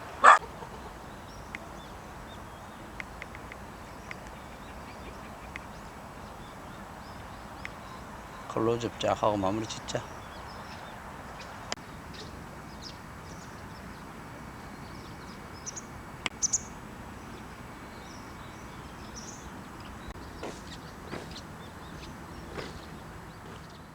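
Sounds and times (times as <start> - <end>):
low background noise: 0.0 - 23.9
sharp clicks: 3.0 - 4.4
high bird chirps: 16.4 - 16.8.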